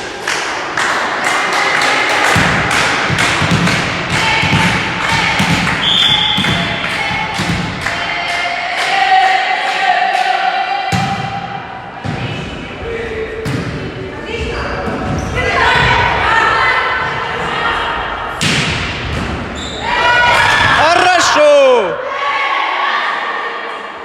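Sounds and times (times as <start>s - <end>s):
spectators clapping in rhythm: 0.0s - 10.8s
voices chanting: 0.0s - 18.4s.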